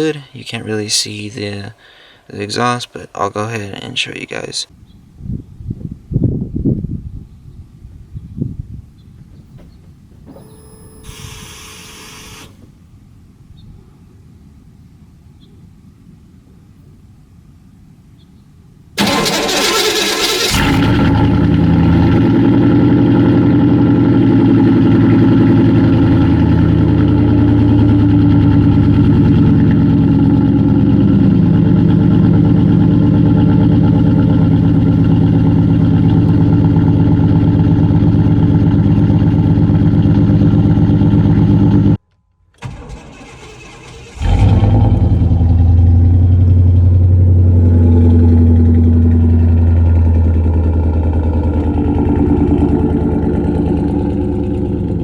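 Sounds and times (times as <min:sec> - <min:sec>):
v-eight engine fast cold idle: 0:19.0 - 0:22.3, 0:42.6 - 0:46.5.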